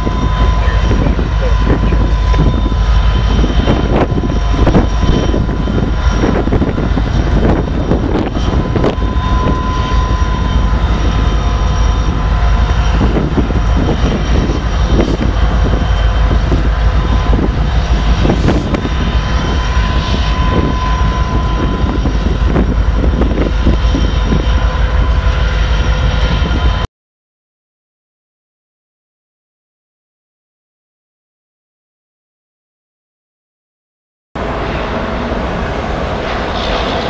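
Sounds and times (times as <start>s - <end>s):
train rumbling past: 0.0s - 26.9s, 34.4s - 37.0s
wind on microphone: 0.0s - 26.9s.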